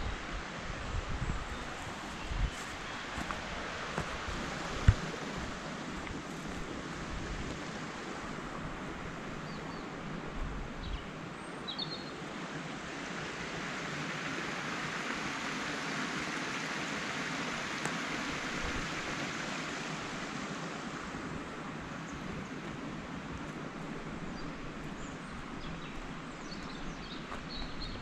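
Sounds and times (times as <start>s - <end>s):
rushing water: 0.0s - 28.0s.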